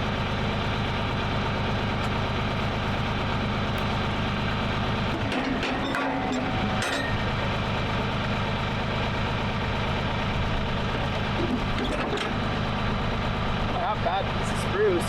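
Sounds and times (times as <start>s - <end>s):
sawmill engine running: 0.0s - 15.0s.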